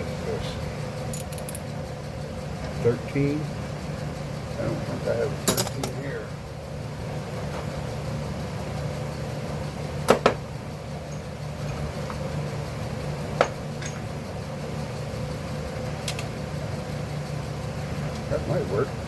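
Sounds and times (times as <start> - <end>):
steady low hum: 0.0 - 5.4
metal hand tools clinking: 1.2 - 1.6.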